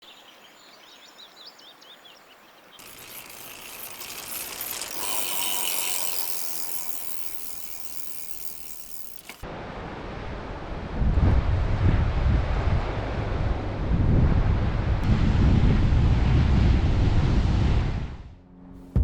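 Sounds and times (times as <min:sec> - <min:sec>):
bicycle freewheel ticking: 0:02.8 - 0:09.4.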